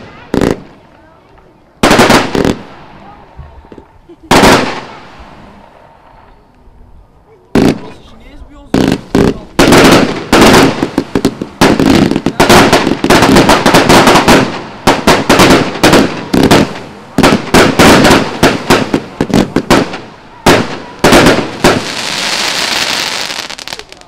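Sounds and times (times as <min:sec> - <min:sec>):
fireworks shots bursting: 0:00.0 - 0:06.4, 0:07.5 - 0:24.0.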